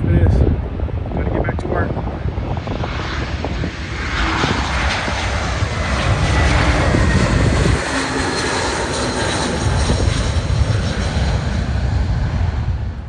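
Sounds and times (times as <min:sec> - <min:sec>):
airliner passing overhead: 0:00.0 - 0:13.0.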